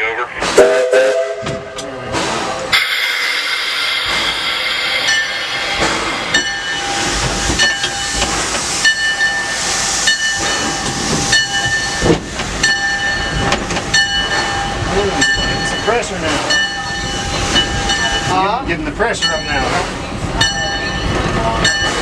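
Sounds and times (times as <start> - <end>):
steam locomotive hissing: 0.5 - 13.3
locomotive bell ringing: 2.8 - 22.0.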